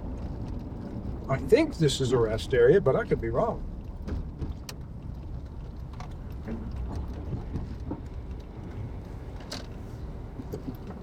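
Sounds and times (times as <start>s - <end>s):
car road and engine rumble: 0.0s - 11.0s
light clicks and rattles: 3.0s - 11.0s.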